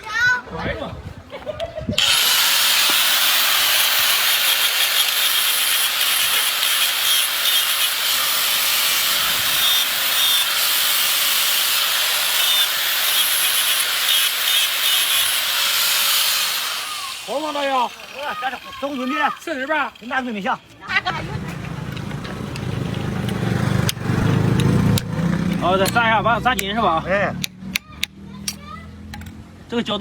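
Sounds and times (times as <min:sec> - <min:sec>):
metal blade on grinder hissing: 0:02.0 - 0:20.2.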